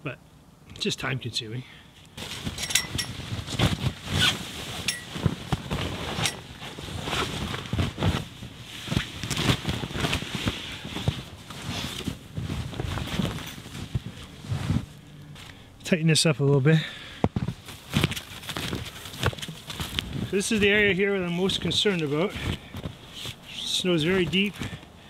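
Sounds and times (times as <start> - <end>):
knocks and crunches: 2.2 - 15.6, 17.2 - 23.4
canvas tent rustling and flapping: 2.2 - 15.7, 17.2 - 25.0.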